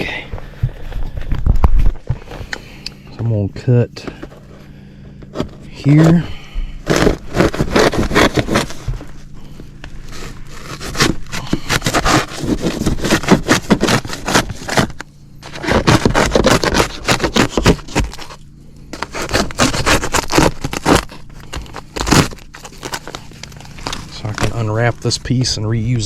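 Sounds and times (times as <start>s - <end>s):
cutting metal ductwork: 6.8s - 9.0s, 10.1s - 18.4s, 19.0s - 25.2s.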